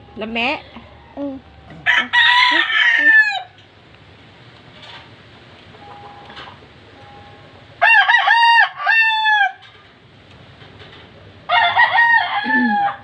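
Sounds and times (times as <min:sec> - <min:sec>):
rooster crowing: 0:00.9 - 0:03.6, 0:07.8 - 0:09.6, 0:11.5 - 0:13.0.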